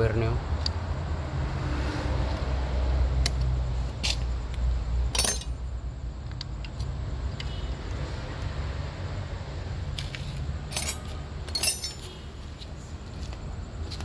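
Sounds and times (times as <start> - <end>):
metal tools clinking: 5.1 - 5.7, 10.0 - 12.2.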